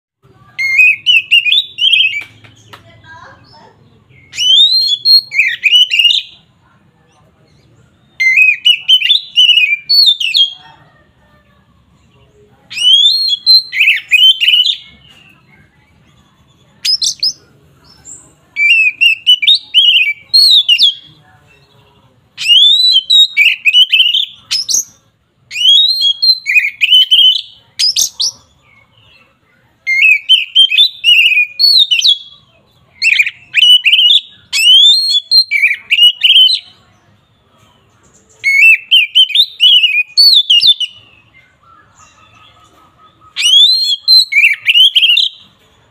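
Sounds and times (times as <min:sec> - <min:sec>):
bird singing whistled phrases: 0:00.5 - 0:02.4, 0:03.4 - 0:06.4, 0:07.9 - 0:10.6, 0:12.7 - 0:15.4, 0:16.8 - 0:17.4, 0:18.1 - 0:21.1, 0:22.4 - 0:29.1, 0:29.8 - 0:36.8, 0:38.4 - 0:42.4, 0:43.1 - 0:45.4.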